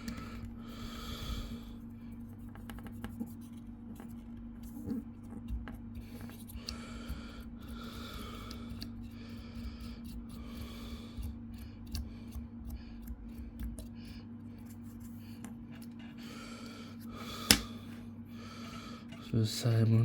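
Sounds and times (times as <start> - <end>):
soft breathing: 0.0 - 2.4, 6.0 - 19.4
low electrical hum: 0.0 - 20.0.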